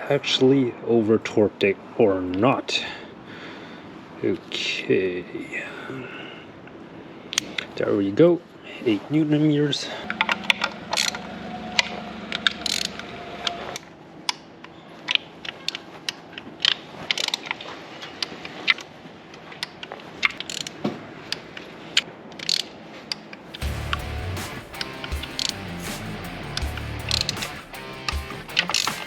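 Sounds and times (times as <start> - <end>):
torque wrench ratchet clicking: 12.6 - 13.0, 20.5 - 20.7, 22.4 - 22.7, 23.6 - 29.0.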